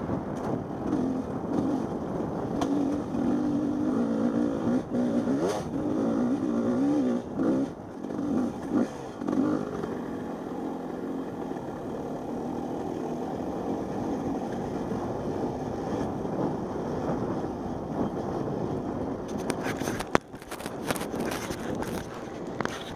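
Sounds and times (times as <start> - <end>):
dirt bike engine revving: 0.8 - 15.1.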